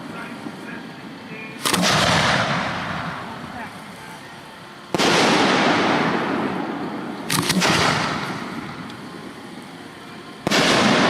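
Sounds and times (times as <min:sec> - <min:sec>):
sharp firework cracks: 0:01.6 - 0:03.4, 0:04.9 - 0:09.1, 0:10.4 - 0:11.0
fireworks booming: 0:01.6 - 0:03.8, 0:04.8 - 0:09.5, 0:10.4 - 0:11.0.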